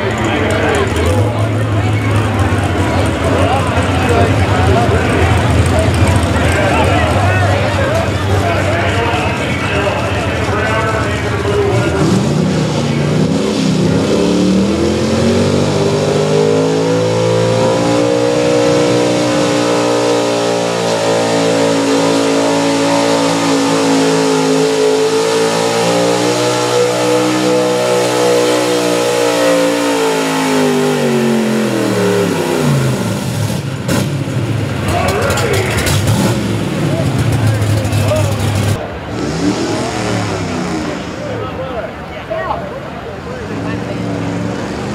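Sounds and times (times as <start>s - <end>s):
truck engine at high revs: 0.0s - 44.9s.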